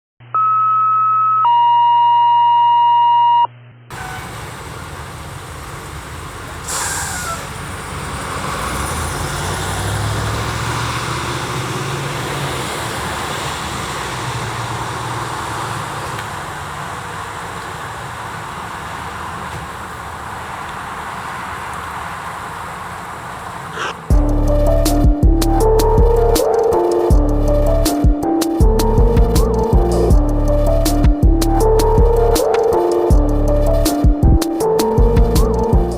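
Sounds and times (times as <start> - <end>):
two electronic tones: 0.2 - 3.6
car driving by: 3.9 - 35.9.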